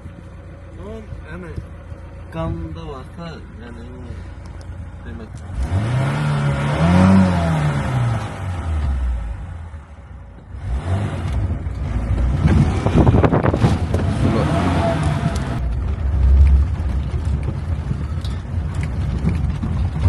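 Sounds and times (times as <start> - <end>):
car engine rumbling: 0.0 - 20.0
rattling: 11.3 - 20.0.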